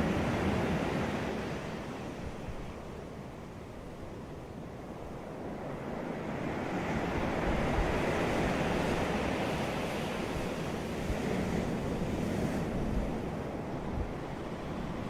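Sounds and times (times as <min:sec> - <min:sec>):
ocean surf washing onto beach: 0:05.6 - 0:15.0.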